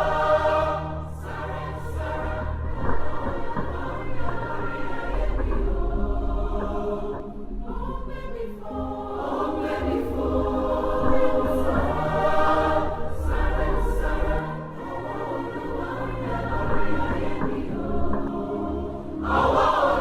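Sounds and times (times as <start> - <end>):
choir singing sustained chords: 0.0 - 20.0
low bass: 2.0 - 8.3.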